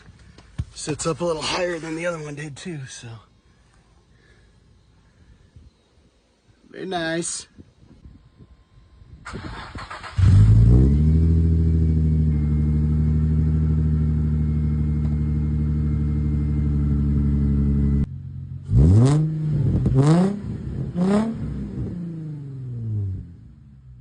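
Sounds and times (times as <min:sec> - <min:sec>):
car engine idling and revving: 0:09.4 - 0:24.0.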